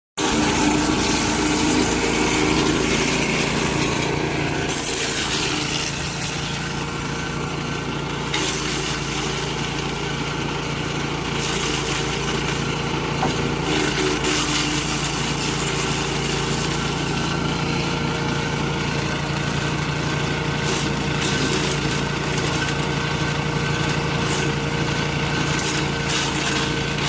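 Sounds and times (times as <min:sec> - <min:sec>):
wood being chipped: 0:00.2 - 0:09.8, 0:24.0 - 0:27.0
wood chipper engine running: 0:00.2 - 0:27.0.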